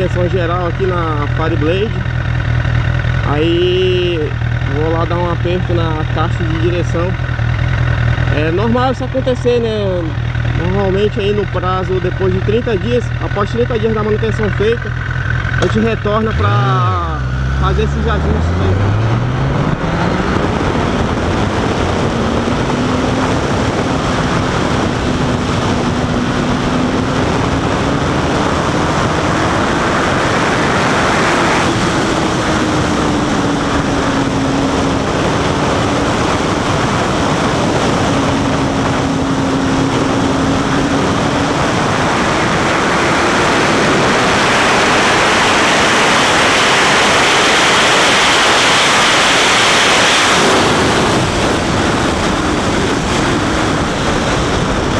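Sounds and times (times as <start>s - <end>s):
motorcycle engine accelerating: 0.0s - 54.9s
wind rush on microphone: 17.7s - 54.9s.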